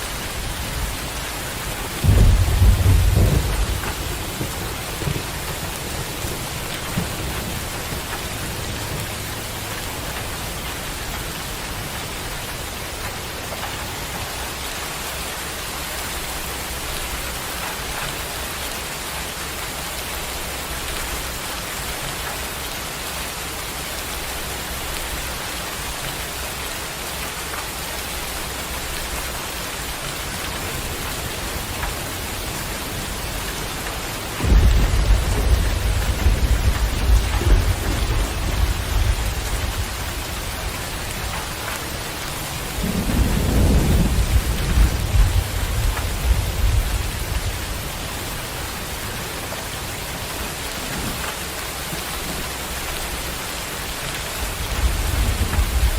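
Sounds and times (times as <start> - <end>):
thunder rumbling: 0.0 - 14.4, 28.3 - 55.9
steady rain falling: 0.0 - 55.9
loud thunder roll: 1.8 - 9.3, 30.5 - 41.6, 42.5 - 48.0.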